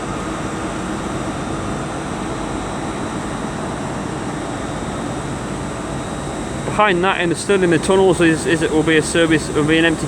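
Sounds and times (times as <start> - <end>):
rumble and hum of trains: 0.0 - 10.0
faint steady tones: 5.4 - 10.0.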